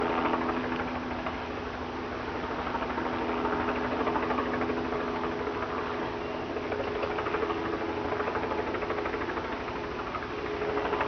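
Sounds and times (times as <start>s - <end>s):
helicopter engine hum: 0.0s - 11.0s
helicopter rotor chop: 0.0s - 11.0s.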